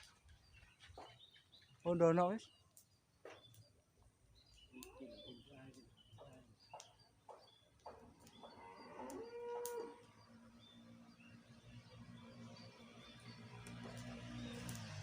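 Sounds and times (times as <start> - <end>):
cow mooing: 8.5 - 10.1.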